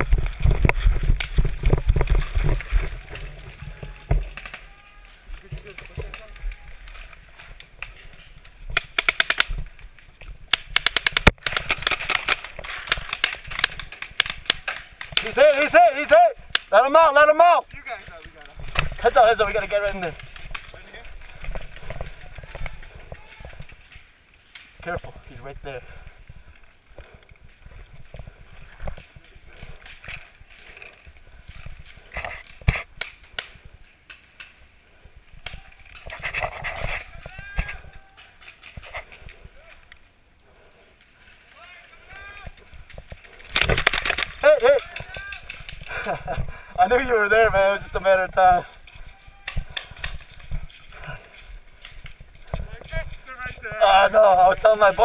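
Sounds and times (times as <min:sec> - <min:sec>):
low thumps and rustling: 0:00.0 - 0:04.6
sharp crack: 0:00.0 - 0:26.0, 0:28.1 - 0:34.7, 0:41.0 - 0:55.0
paintball markers firing: 0:08.7 - 0:09.7, 0:10.5 - 0:15.7, 0:43.4 - 0:46.1.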